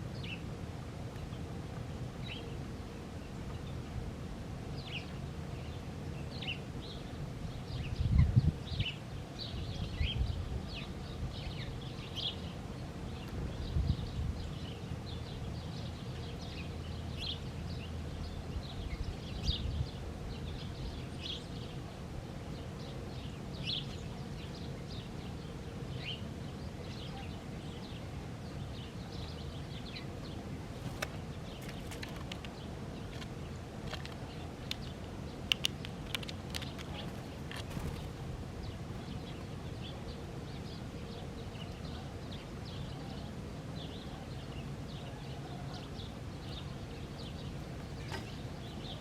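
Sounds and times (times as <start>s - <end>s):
small birds chirping: 0.0s - 0.5s, 1.2s - 4.0s, 4.7s - 49.0s
sharp clicks: 33.9s - 37.7s.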